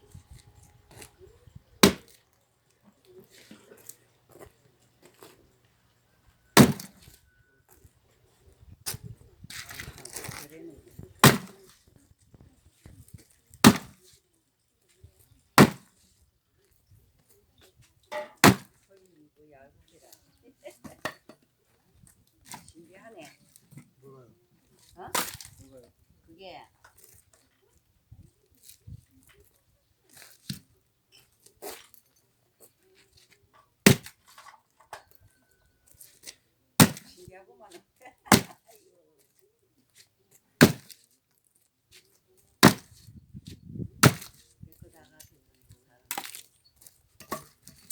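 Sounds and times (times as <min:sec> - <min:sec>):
axe chopping firewood: 0:01.8 - 0:02.2, 0:06.6 - 0:07.2, 0:11.2 - 0:11.7, 0:13.6 - 0:14.1, 0:15.6 - 0:16.0, 0:18.1 - 0:18.8, 0:25.1 - 0:25.6, 0:30.2 - 0:30.6, 0:33.8 - 0:34.6, 0:36.8 - 0:37.2, 0:38.3 - 0:38.7, 0:40.6 - 0:41.0, 0:42.6 - 0:44.5, 0:46.1 - 0:46.5, 0:47.2 - 0:47.9
wood cracking: 0:01.8 - 0:02.3, 0:18.1 - 0:18.8, 0:38.2 - 0:38.6, 0:40.6 - 0:41.0, 0:42.6 - 0:43.1.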